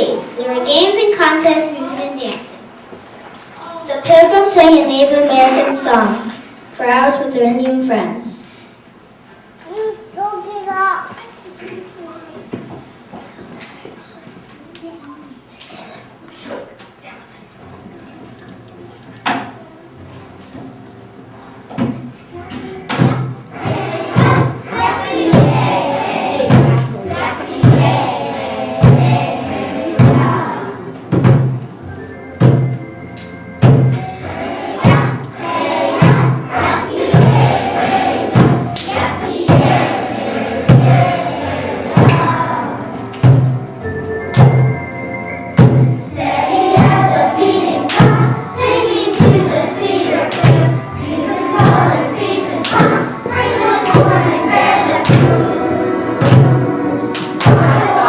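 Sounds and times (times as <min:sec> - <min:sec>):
children singing in unison: 0:22.5 - 0:31.4, 0:33.6 - 0:44.7, 0:45.6 - 0:58.0
steady drum beat: 0:23.0 - 0:31.6, 0:33.6 - 0:42.6, 0:43.2 - 0:43.8, 0:45.6 - 0:58.0.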